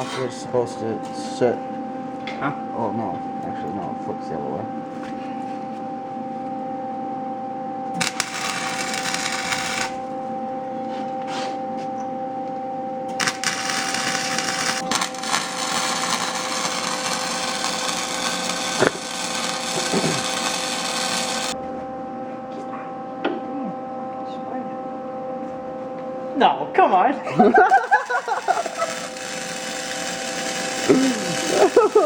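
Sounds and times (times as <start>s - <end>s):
electrical hum: 0.0s - 32.0s
welding arc crackling: 8.0s - 10.1s, 13.1s - 21.6s, 27.6s - 32.0s.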